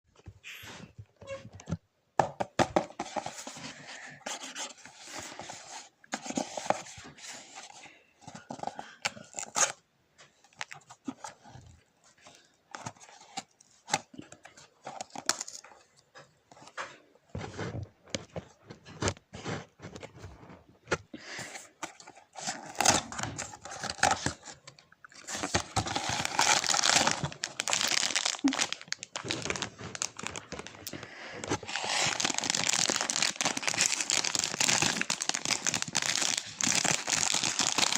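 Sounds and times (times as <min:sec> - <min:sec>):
packaging torn and crinkled: 0:25.2 - 0:30.9, 0:31.6 - 0:37.9.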